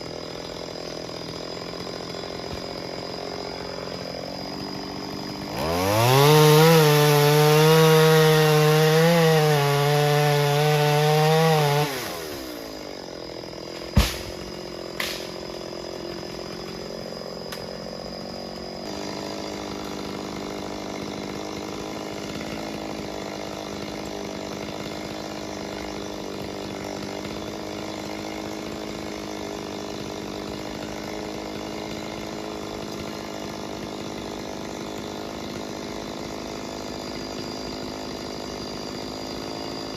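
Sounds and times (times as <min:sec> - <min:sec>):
chainsaw engine revving: 0:00.0 - 0:39.9
sharp knock: 0:14.0 - 0:14.4.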